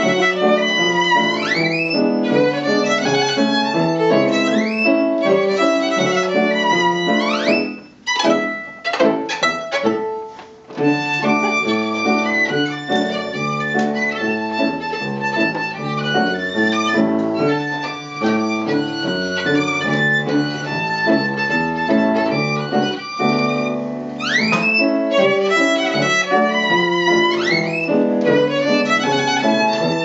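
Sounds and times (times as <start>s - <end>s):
violin playing lively melody: 0.0s - 30.0s.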